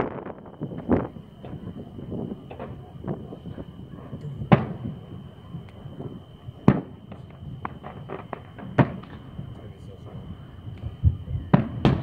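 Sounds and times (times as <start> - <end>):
loud firework bangs: 0.0 - 12.0
firecracker pops and cracks: 4.2 - 4.9, 5.6 - 9.3, 10.7 - 12.0.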